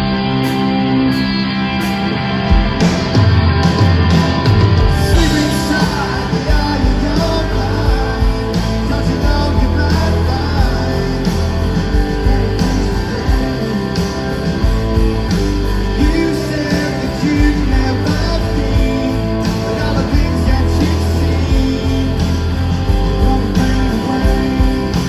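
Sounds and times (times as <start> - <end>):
live rock band playing: 0.0 - 25.0
person singing: 5.0 - 25.0.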